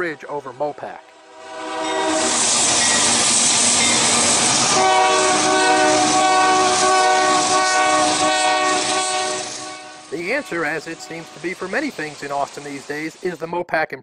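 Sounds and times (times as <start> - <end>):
rush of passing train: 0.0 - 13.4
train horn blowing: 1.0 - 11.9.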